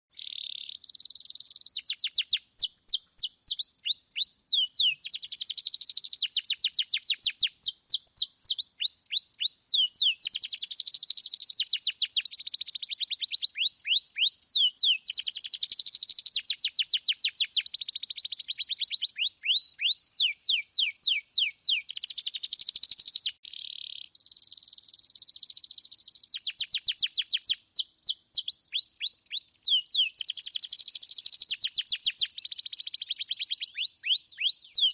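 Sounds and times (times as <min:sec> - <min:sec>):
canary singing trills: 0:00.1 - 0:34.9.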